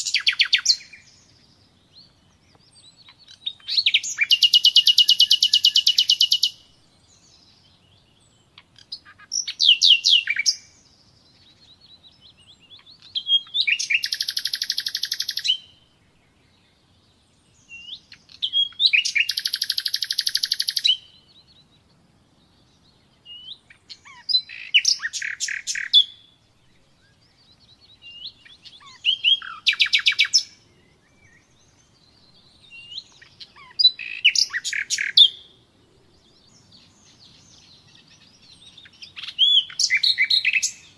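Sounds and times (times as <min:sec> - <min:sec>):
nightingale singing trills: 0:00.0 - 0:40.9.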